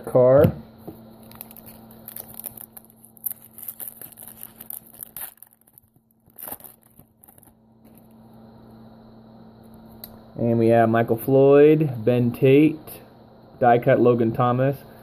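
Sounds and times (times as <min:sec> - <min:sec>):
wrapper crinkling and tearing: 0:01.2 - 0:08.0.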